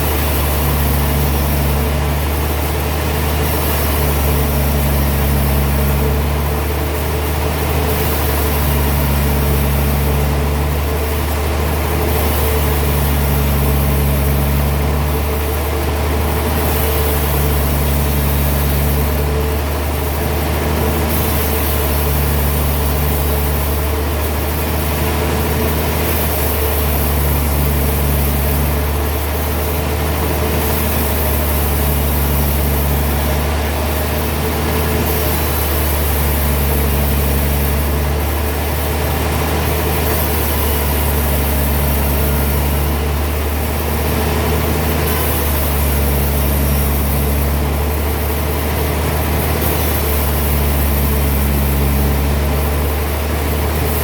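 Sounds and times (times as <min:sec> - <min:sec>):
sawmill machinery humming: 0:00.0 - 0:54.0.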